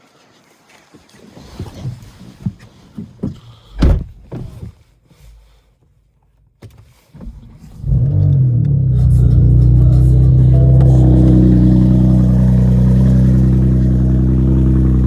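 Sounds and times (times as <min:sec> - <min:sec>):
thumps and clicks: 0:02.4 - 0:04.8
car engine starting and idling: 0:07.2 - 0:15.0.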